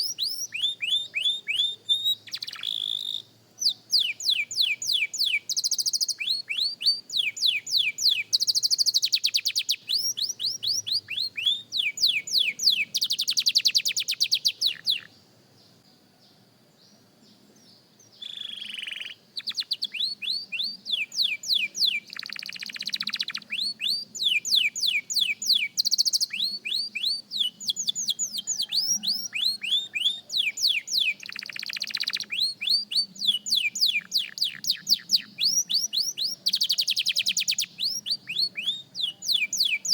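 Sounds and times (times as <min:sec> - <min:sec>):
canary singing: 0:00.0 - 0:15.8, 0:18.1 - 0:39.9.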